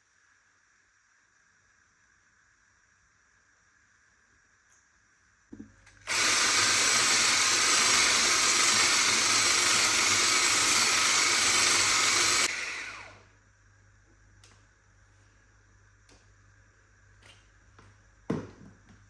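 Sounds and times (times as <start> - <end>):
small electric motor running: 6.1 - 13.2.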